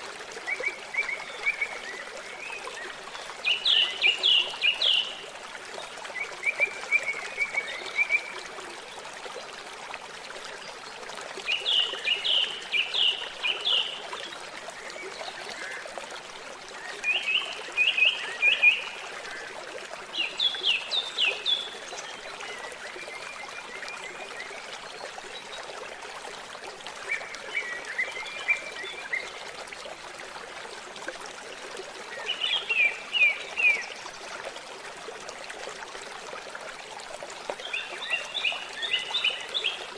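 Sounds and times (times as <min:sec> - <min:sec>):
water trickling: 0:00.0 - 0:39.9
songbird singing chirps: 0:00.5 - 0:08.7, 0:11.4 - 0:15.9, 0:16.7 - 0:25.7, 0:37.5 - 0:39.9.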